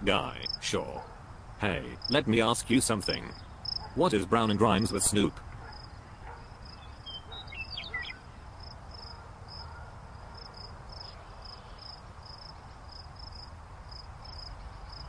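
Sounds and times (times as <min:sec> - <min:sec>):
cricket chirping: 0:00.4 - 0:00.6, 0:02.0 - 0:02.2, 0:03.0 - 0:03.9, 0:08.6 - 0:15.0.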